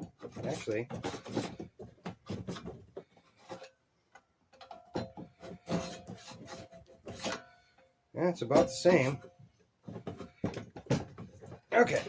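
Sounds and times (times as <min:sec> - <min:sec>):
metal tube rubbing in fork leg: 0:05.3 - 0:07.7.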